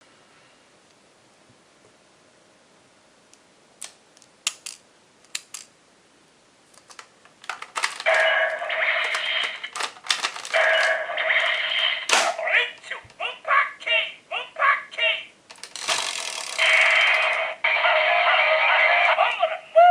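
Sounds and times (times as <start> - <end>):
electronic toy sound effects: 8.0 - 9.8, 10.4 - 13.6, 15.8 - 19.9
plastic toy clicks: 9.0 - 10.6, 15.5 - 17.3.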